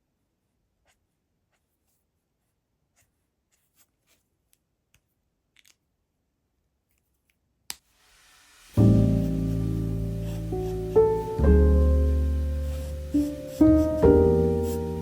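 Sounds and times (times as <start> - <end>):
pen scratching on paper: 0.8 - 4.3, 9.0 - 11.4, 12.0 - 15.0.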